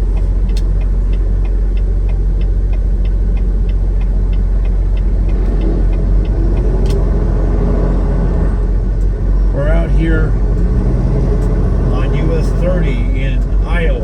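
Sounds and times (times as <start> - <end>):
light regular ticking: 0.0 - 14.0
road noise: 0.0 - 14.0
truck engine rumble: 0.0 - 14.0
sharp click: 6.8 - 7.0.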